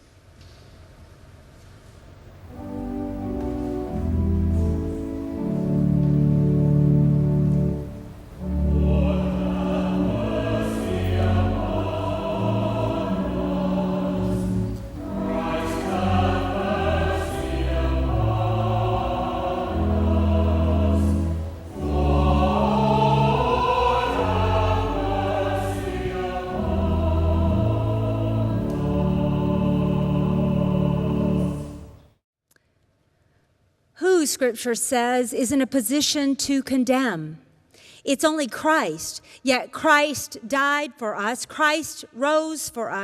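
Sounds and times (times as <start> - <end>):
choir singing: 2.5 - 32.0
sustained low accompaniment: 2.5 - 32.0.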